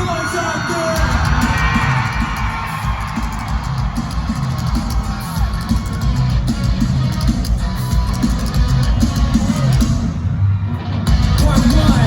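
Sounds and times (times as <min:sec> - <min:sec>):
crowd yelling and cheering: 0:00.0 - 0:12.0
live concert music with heavy bass: 0:00.0 - 0:12.0.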